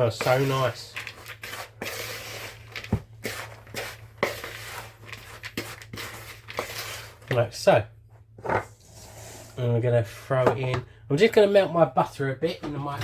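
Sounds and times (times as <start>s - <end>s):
spoon scraping in mixing bowl: 0.0s - 7.4s.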